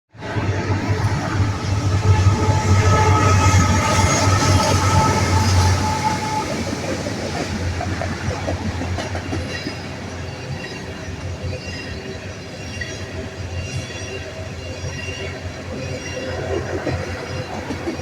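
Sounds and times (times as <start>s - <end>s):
steady tones: 0.2s - 7.8s.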